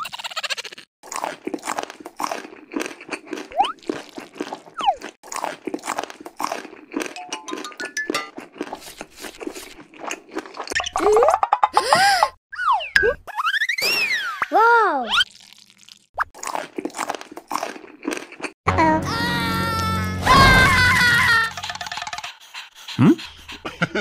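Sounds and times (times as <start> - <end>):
crunching of crisp food: 1.0 - 7.6, 15.2 - 18.6.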